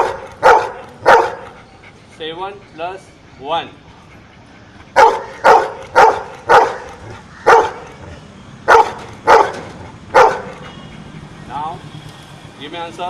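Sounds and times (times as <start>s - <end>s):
dog barking: 0.0s - 1.6s, 5.0s - 7.9s, 8.7s - 10.7s.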